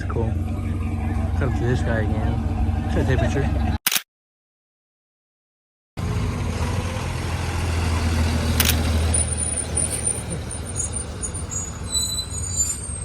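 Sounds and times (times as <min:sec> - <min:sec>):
car engine rumbling: 0:00.0 - 0:03.8, 0:06.0 - 0:13.0
sharp click: 0:03.8 - 0:04.0, 0:08.6 - 0:08.9
faint high squeaks: 0:09.2 - 0:13.0.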